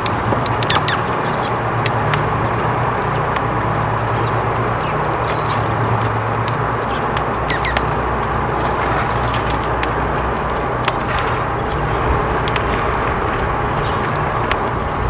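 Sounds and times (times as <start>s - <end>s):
sharp ticks: 0.0s - 15.0s
steady low hum and hiss: 0.0s - 15.0s
high bird chirps: 0.5s - 1.6s, 3.0s - 8.1s.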